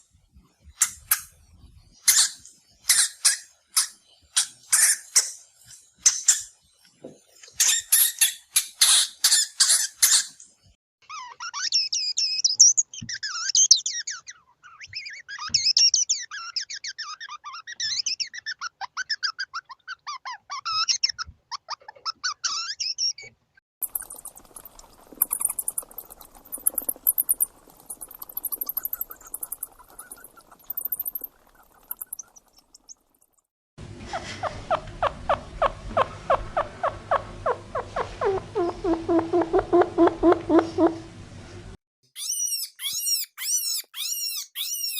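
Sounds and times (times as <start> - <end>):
rodents squeaking: 7.5 - 10.4, 11.1 - 33.4, 42.2 - 44.9
rhythmic pitched rodent calls: 23.8 - 33.2
rodent clicking chatter: 23.8 - 33.4.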